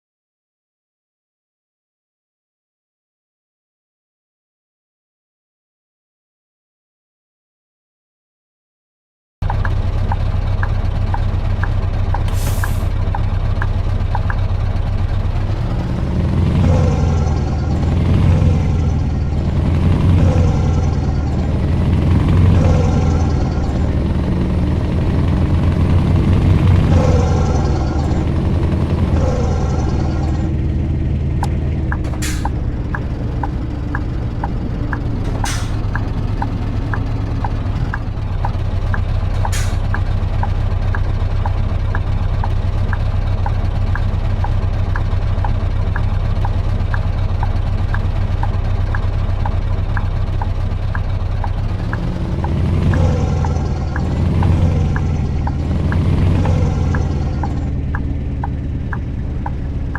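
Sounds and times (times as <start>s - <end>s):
truck engine revving: 9.4s - 59.9s
air hissing: 12.3s - 12.9s, 32.1s - 32.6s, 35.3s - 35.9s, 39.4s - 40.0s
fast ticking: 31.4s - 38.6s.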